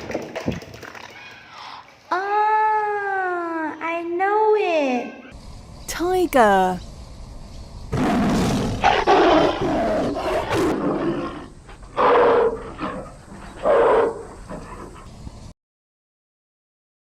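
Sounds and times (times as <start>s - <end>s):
tiger roaring: 7.9s - 15.1s.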